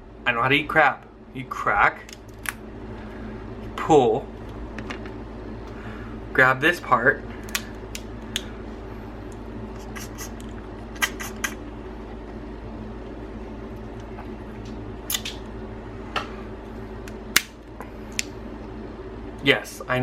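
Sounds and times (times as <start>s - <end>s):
low hum: 0.0s - 20.0s
crab shell cracking: 15.1s - 15.4s.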